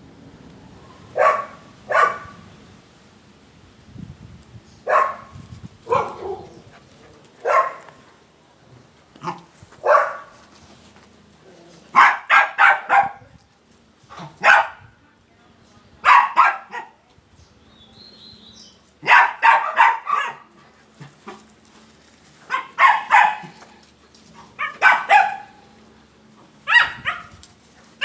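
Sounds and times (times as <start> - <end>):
puppy barking: 1.2 - 2.4, 4.9 - 5.3, 5.9 - 6.5, 7.4 - 8.0, 9.2 - 10.4, 11.9 - 13.2, 14.4 - 14.9, 16.0 - 17.0, 19.0 - 20.5, 22.5 - 23.6, 24.5 - 25.6, 26.7 - 27.4.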